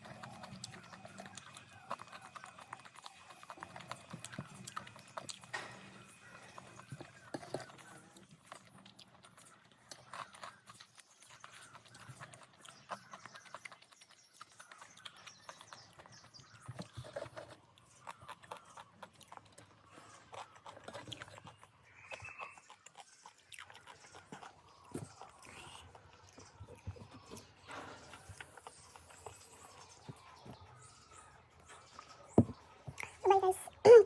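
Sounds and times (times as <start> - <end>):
chewing with mouth clicks: 0.0 - 33.9.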